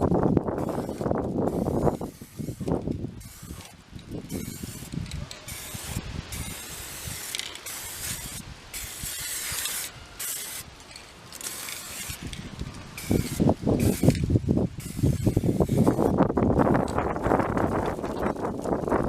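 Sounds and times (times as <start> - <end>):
spray can hissing bursts: 0.0 - 19.0.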